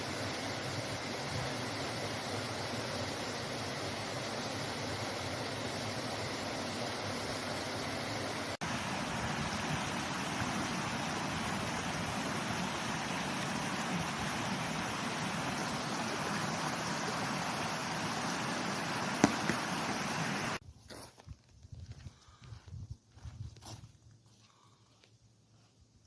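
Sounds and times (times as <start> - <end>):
water rushing over rocks: 0.0 - 20.6.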